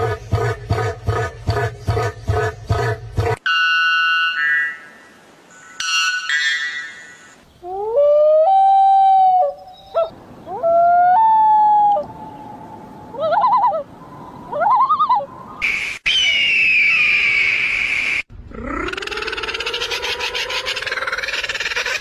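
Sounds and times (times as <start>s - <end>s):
long whistled bird calls: 15.6s - 18.3s.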